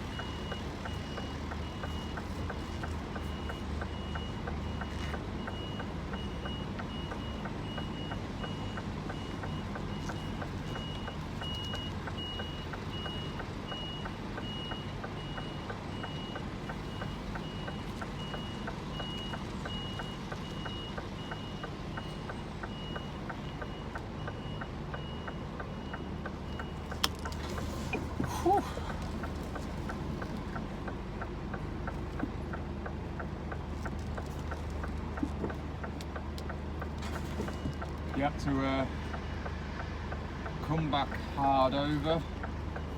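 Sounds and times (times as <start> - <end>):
reversing alarm beeping: 0.0 - 2.6, 3.2 - 27.0
diesel engine running: 0.0 - 42.9.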